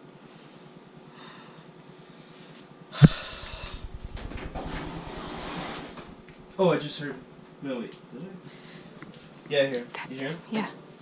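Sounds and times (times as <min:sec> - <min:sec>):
rustling and scraping: 0:03.2 - 0:06.6.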